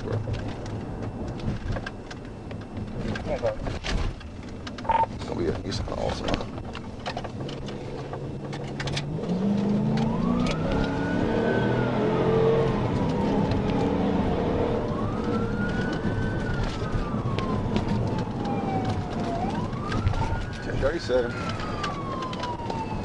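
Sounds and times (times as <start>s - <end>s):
police siren wailing: 4.8s - 5.1s, 9.0s - 23.0s
car engine accelerating: 7.5s - 19.1s.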